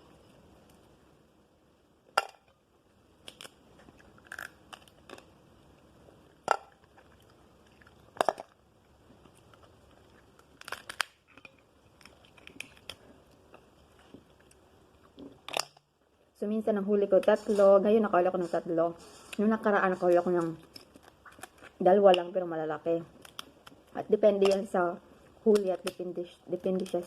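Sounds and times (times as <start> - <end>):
crab shell cracking: 3.2 - 5.4, 9.2 - 13.8, 14.4 - 15.9, 20.5 - 22.3, 23.1 - 24.8
chewing: 9.2 - 15.3.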